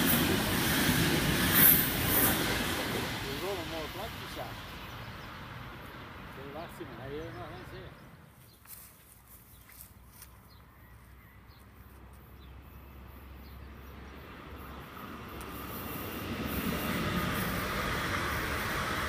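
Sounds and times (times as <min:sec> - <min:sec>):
electric train passing: 0:00.0 - 0:08.4, 0:12.6 - 0:19.0.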